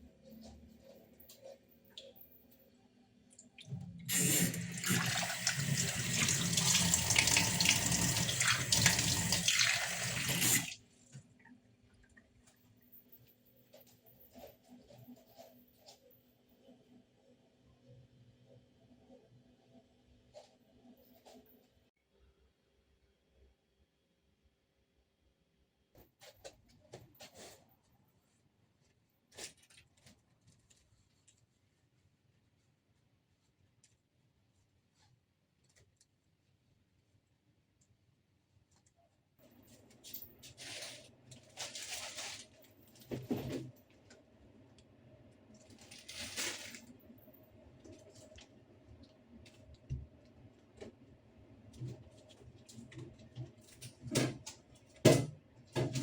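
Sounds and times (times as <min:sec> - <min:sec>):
tap water running into sink: 0:03.6 - 0:10.8.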